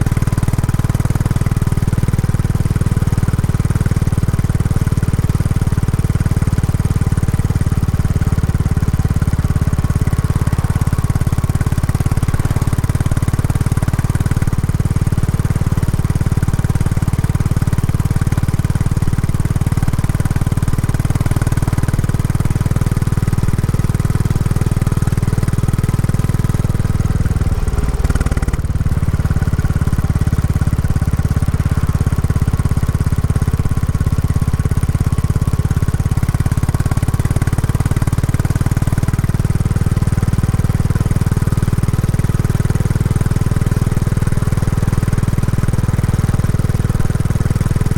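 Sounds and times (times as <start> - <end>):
motorcycle engine thumping: 24.7 - 32.8.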